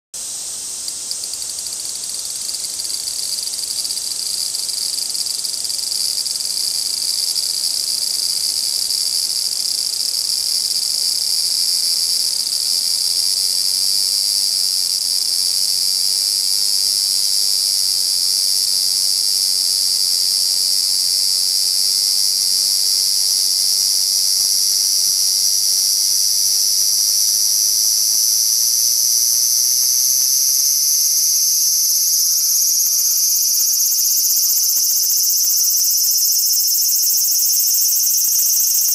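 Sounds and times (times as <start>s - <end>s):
cicada buzzing: 11.6s - 13.2s, 13.9s - 38.9s.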